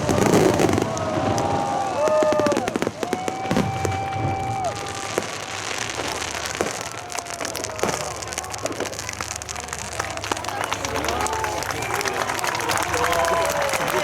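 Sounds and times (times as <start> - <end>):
fireworks whistling: 0.0 - 10.5
fireworks crackling and popping: 0.0 - 14.0.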